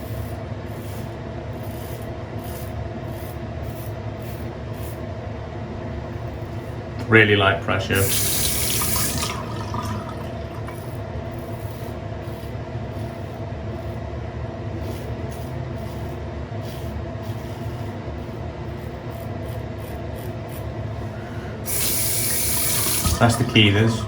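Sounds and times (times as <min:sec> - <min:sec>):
razor scraping through stubble: 0:00.0 - 0:05.1, 0:14.8 - 0:20.8
low background hum: 0:00.0 - 0:24.0.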